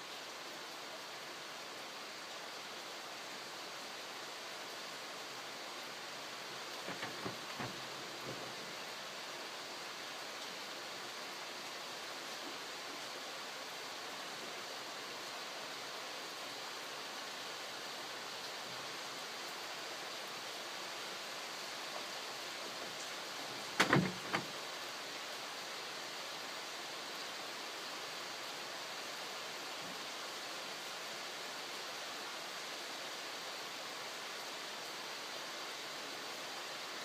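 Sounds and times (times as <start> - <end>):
rain falling: 0.0 - 37.0
sharp knocks: 6.8 - 8.6, 23.8 - 24.5.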